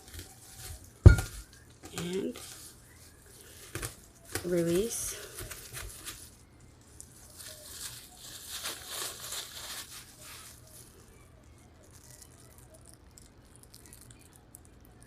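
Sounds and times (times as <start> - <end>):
rustling and crackling: 0.0 - 12.9
faint low hum: 0.0 - 15.0.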